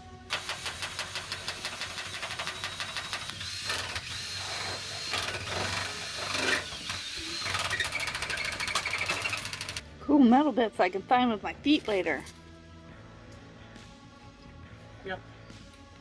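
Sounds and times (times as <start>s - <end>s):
high drill whine: 0.3s - 9.8s
power drill clattering: 0.3s - 9.8s.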